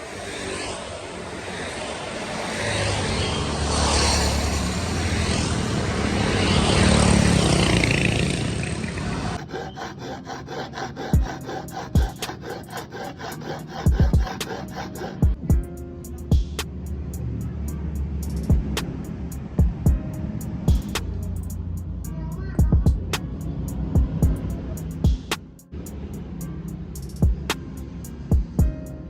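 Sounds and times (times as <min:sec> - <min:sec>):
music with steady beat: 0:12.0 - 0:12.3, 0:13.9 - 0:14.4, 0:15.2 - 0:16.8, 0:18.2 - 0:20.1, 0:20.7 - 0:21.6, 0:22.6 - 0:23.2, 0:24.0 - 0:25.7, 0:27.0 - 0:27.7, 0:28.3 - 0:29.0
rushing noise with low rumble: 0:18.2 - 0:20.1.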